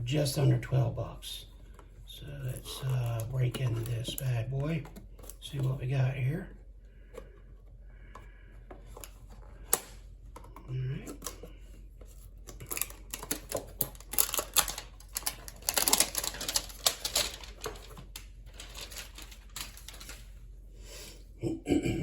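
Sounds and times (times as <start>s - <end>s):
packaging rustling: 1.6s - 6.4s, 12.0s - 20.5s
packaging being torn open: 12.5s - 20.2s.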